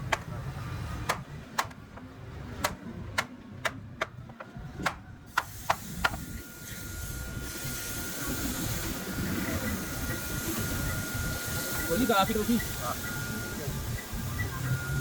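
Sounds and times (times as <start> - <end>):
faint high whine: 6.2 - 15.0.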